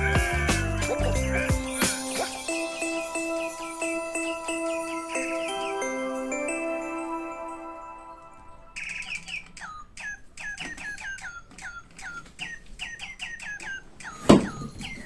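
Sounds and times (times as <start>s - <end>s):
small bird chirping: 8.8s - 15.0s.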